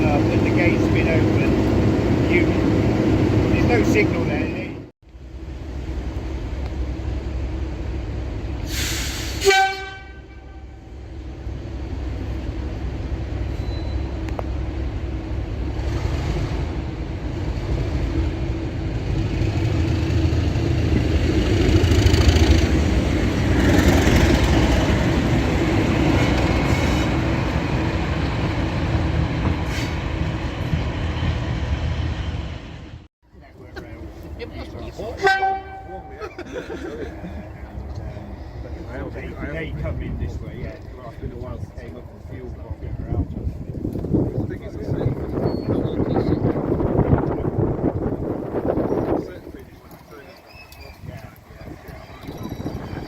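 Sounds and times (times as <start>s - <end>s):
diesel locomotive engine running: 0.0s - 53.0s
locomotive horn blast: 9.2s - 11.0s, 35.2s - 36.3s.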